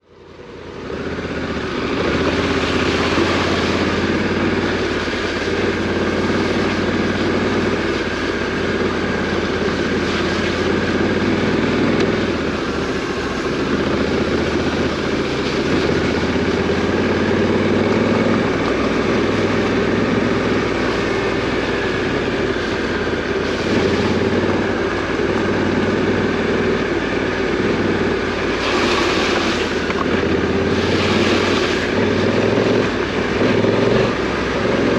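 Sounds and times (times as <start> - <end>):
motorcycle engine running: 0.0 - 34.9
steady rush of noise: 0.0 - 34.9.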